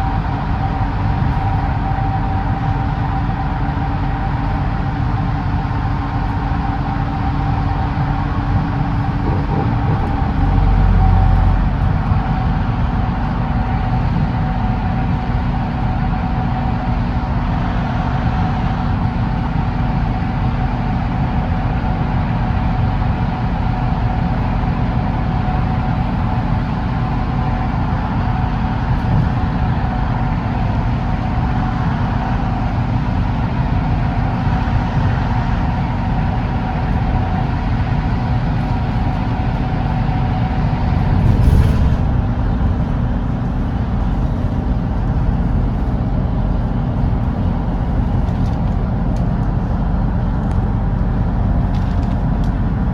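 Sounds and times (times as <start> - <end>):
bus engine drone and road rumble: 0.0 - 52.9
brief rush of noise: 40.8 - 44.7.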